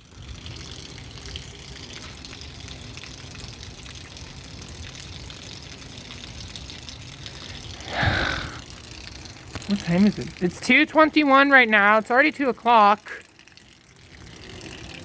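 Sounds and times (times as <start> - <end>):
faint ticks of raindrops: 0.0 - 15.0
light rain hissing: 4.2 - 13.4.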